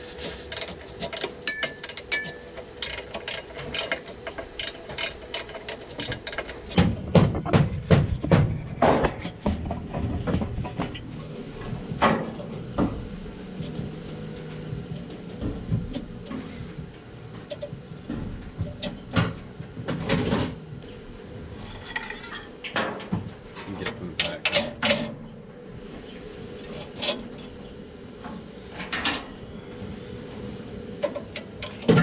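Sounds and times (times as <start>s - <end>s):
hand tools clinking on metal: 0.5s - 6.6s
heavy metal knocks: 6.8s - 10.6s.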